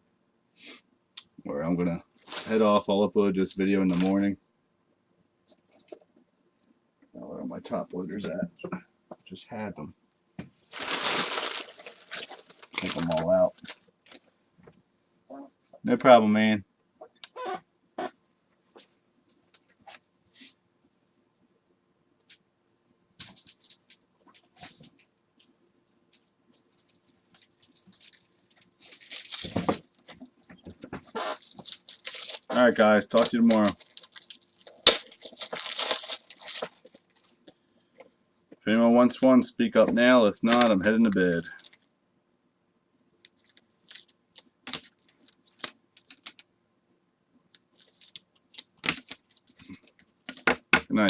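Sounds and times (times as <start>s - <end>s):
trading cards being handled: 2.2s - 3.0s, 3.8s - 4.2s, 10.8s - 14.2s, 26.6s - 30.3s, 31.1s - 37.4s, 40.4s - 41.8s, 43.3s - 46.4s, 47.6s - 50.5s.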